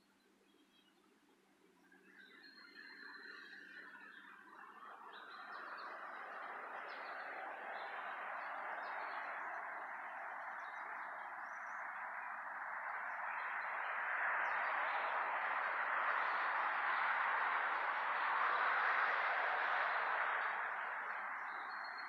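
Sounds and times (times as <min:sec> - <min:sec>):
birds chirping: 0:20.4 - 0:22.0.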